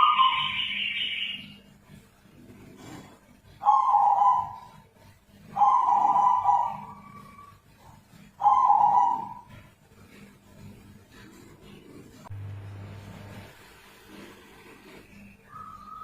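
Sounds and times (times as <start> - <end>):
dove calling: 0.0 - 1.6, 3.5 - 4.8, 5.4 - 9.7, 15.2 - 16.0.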